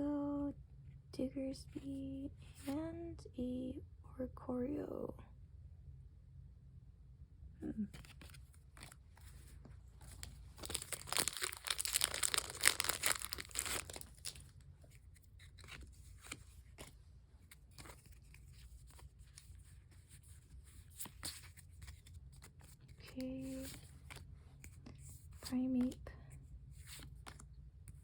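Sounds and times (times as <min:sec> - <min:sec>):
foil wrapper tearing: 0:10.2 - 0:15.8.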